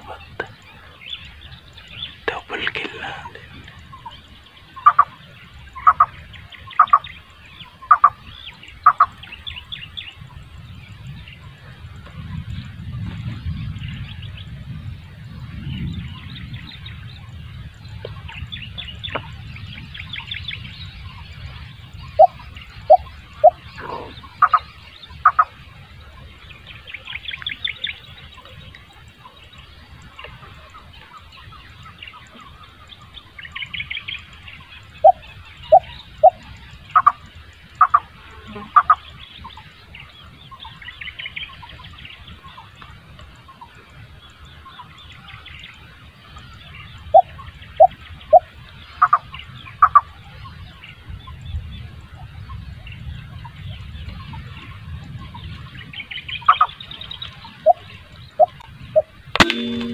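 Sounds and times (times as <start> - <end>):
bird calling clear notes: 0.0 - 10.2, 22.0 - 25.6, 35.0 - 39.1, 58.4 - 59.9
small birds chirping: 0.0 - 59.9.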